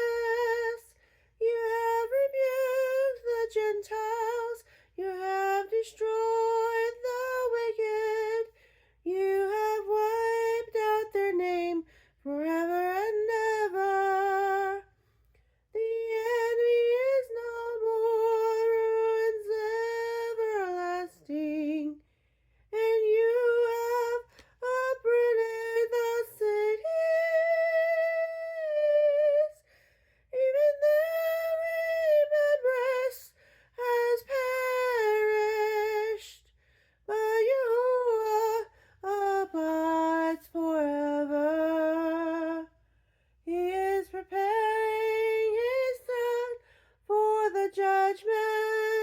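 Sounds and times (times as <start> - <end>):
woman singing unaccompanied: 0.0 - 15.0, 15.7 - 22.0, 22.7 - 29.7, 30.3 - 42.8, 43.5 - 49.0.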